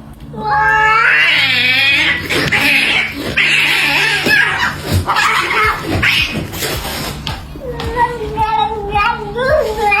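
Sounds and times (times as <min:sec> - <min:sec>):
cat yowling: 0:00.4 - 0:06.5.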